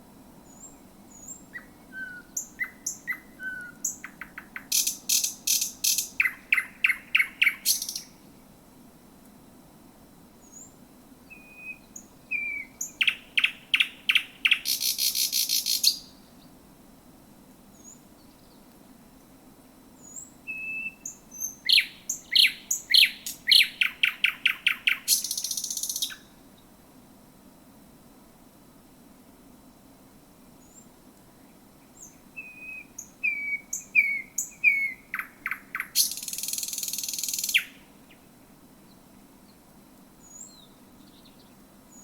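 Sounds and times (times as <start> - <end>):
thrush nightingale singing: 0.4 - 8.3, 10.4 - 16.6, 17.7 - 18.7, 20.0 - 26.4, 30.6 - 39.6, 40.2 - 42.0.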